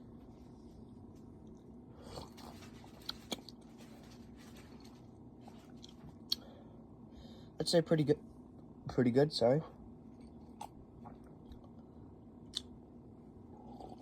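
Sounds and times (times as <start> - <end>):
small mouth clicks: 12.5 - 12.7
person sipping and swallowing: 13.5 - 14.0.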